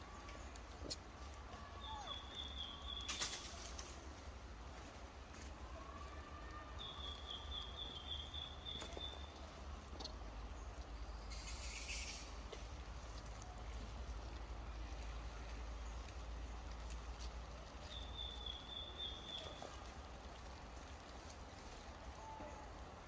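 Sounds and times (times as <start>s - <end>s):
low outdoor rumble: 0.0s - 23.0s
hissing rustle: 2.6s - 5.6s, 8.7s - 23.0s.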